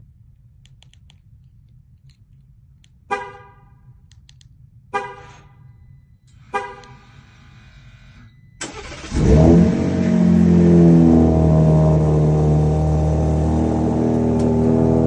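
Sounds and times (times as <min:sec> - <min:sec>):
pickup horn chirps: 0:04.9 - 0:10.7.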